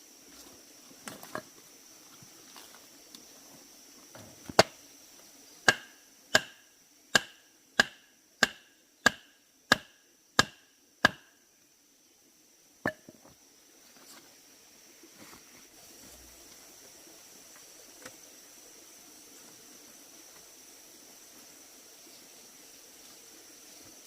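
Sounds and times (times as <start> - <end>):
blade chopping bamboo: 5.6 - 6.6, 7.2 - 11.3.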